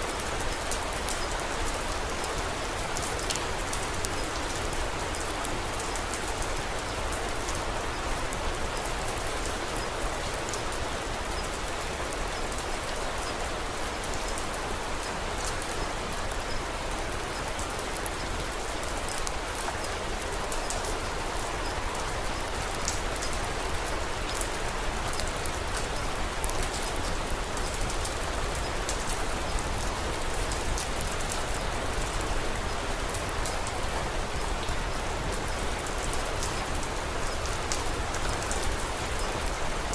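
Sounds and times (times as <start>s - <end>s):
steady rain falling: 0.0s - 39.9s
wood fire crackling: 17.2s - 39.9s.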